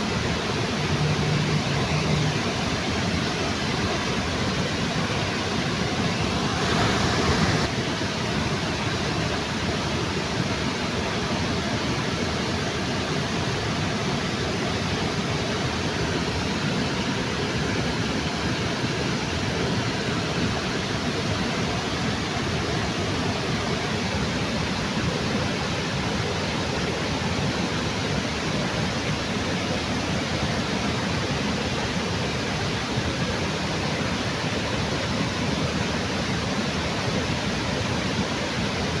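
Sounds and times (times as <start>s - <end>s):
waterfall rushing: 0.0s - 8.5s.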